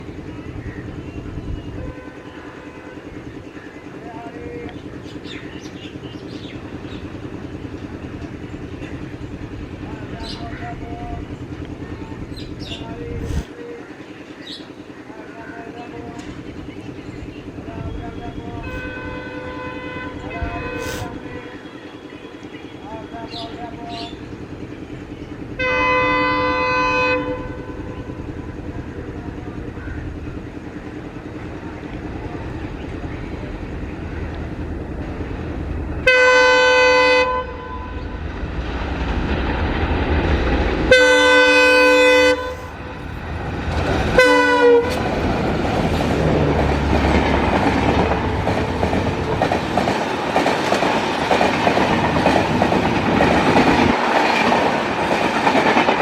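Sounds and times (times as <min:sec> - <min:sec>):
diesel engines rumbling: 0:00.0 - 0:56.0
locomotive horn blasts: 0:01.7 - 0:03.4, 0:18.3 - 0:22.9, 0:25.6 - 0:28.2, 0:36.0 - 0:38.2, 0:40.9 - 0:43.4, 0:44.1 - 0:45.0
train wheels clicking over rail joints: 0:04.6 - 0:15.1, 0:15.9 - 0:17.7, 0:42.4 - 0:56.0.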